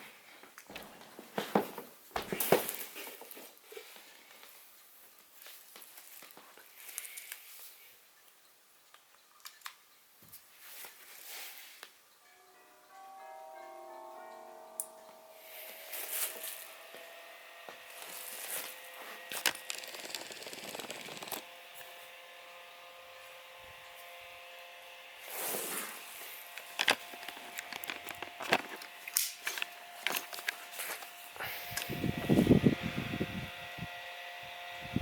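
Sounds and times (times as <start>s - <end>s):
desk fan running: 13.4s - 35.0s.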